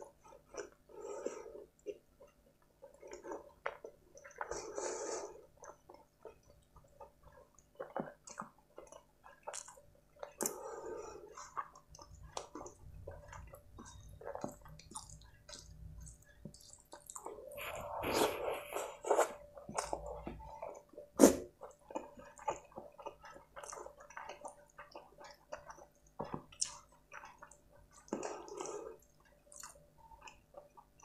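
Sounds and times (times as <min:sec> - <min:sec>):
wet chewing mouth sounds: 0:00.0 - 0:31.0.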